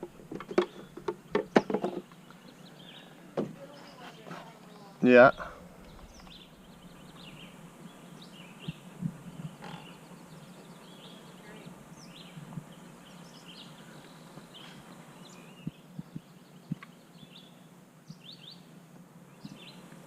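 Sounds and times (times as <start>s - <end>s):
birds chirping and trilling: 0.0s - 20.0s
soft low thumps: 5.2s - 9.6s.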